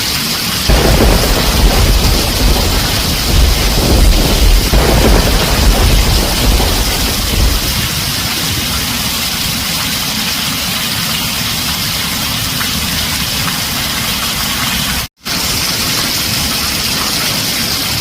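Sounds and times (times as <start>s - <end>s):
heavy rain on a tin roof: 0.0s - 18.0s
low thunder rumble: 0.7s - 9.6s.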